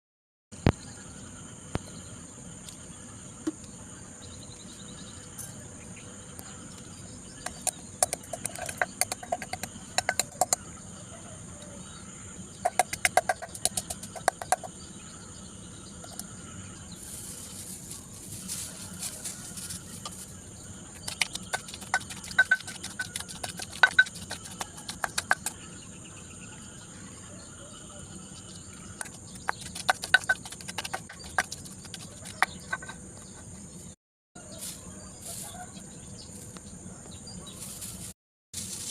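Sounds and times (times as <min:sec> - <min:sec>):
insect chirring: 0:06.8 - 0:10.7, 0:12.6 - 0:14.8, 0:15.6 - 0:26.8, 0:28.2 - 0:33.6
rapid clicking and knocking: 0:07.5 - 0:10.6, 0:12.7 - 0:14.7, 0:21.0 - 0:25.6, 0:29.0 - 0:33.6.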